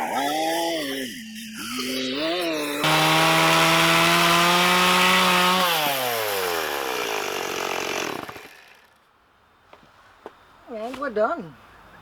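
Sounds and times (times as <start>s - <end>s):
chainsaw cutting wood: 1.7s - 9.0s.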